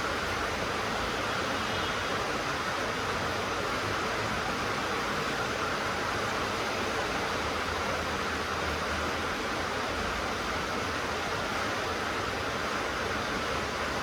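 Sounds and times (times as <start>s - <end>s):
rain on a tin roof: 0.0s - 14.0s.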